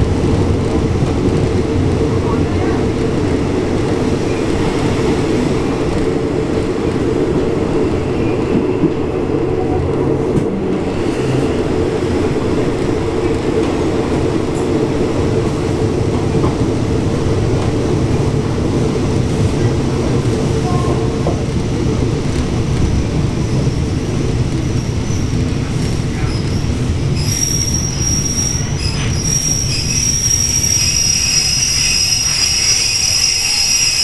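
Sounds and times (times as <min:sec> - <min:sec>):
train wheels rumbling: 0:00.0 - 0:34.0
high-pitched metallic brake squeal: 0:26.4 - 0:34.0.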